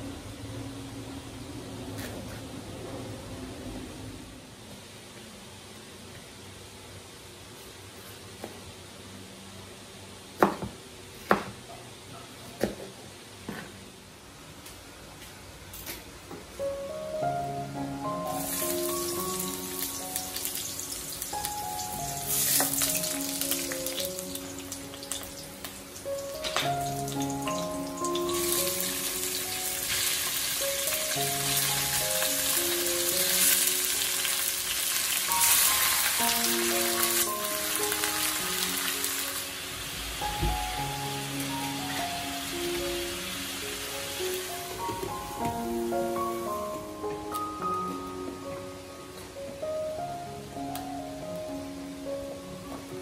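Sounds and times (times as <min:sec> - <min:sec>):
faint steady hiss: 0:13.0 - 0:53.0
meat sizzling in a wok: 0:18.2 - 0:45.4.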